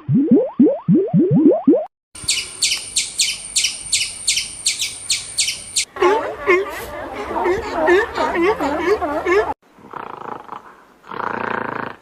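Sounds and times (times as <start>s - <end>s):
overlapping low chirps: 0.0s - 6.0s.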